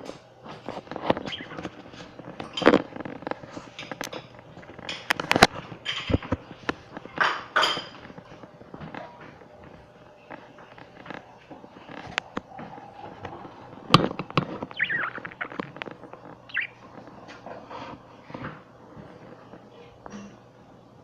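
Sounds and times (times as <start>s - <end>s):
budgerigars chirping: 1.2s - 1.7s, 14.6s - 15.6s, 16.5s - 16.8s.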